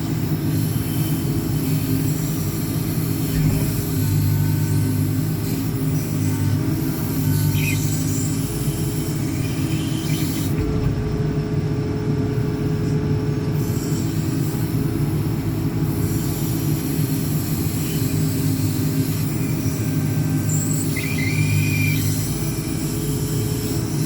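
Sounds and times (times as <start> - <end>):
diesel engine heavy drone: 0.0 - 24.0
high steady whine: 13.4 - 24.0.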